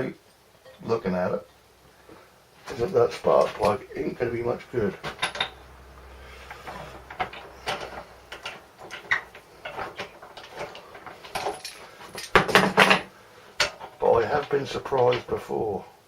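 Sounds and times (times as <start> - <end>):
hand tools clicking on metal: 2.7 - 5.7, 6.4 - 15.3.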